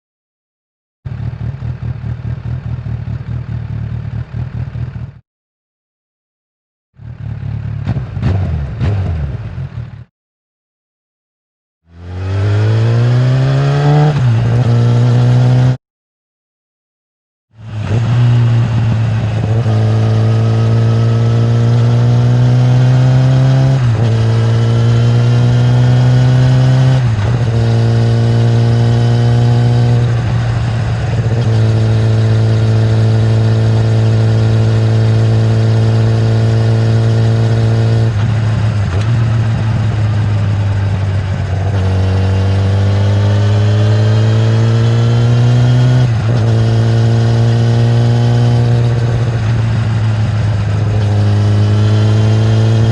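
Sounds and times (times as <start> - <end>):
motorcycle engine accelerating: 1.1 - 5.2, 7.0 - 10.1, 11.9 - 15.8, 17.6 - 52.9.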